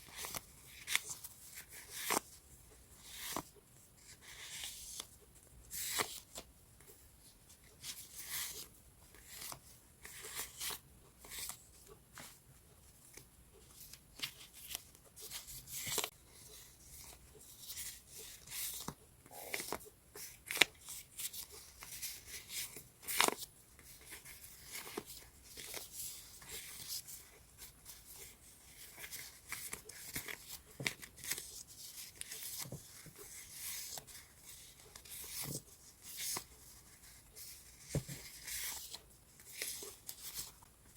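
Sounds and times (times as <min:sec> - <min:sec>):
paper rustling and crinkling: 0:00.0 - 0:07.0, 0:07.6 - 0:40.9.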